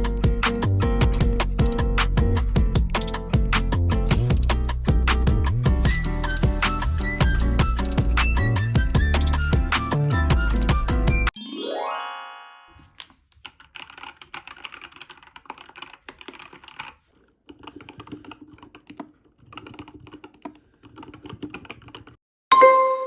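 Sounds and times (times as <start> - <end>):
mechanical keyboard typing: 0.0 - 4.8, 13.0 - 22.2
bright chime: 11.3 - 12.9, 22.5 - 23.0.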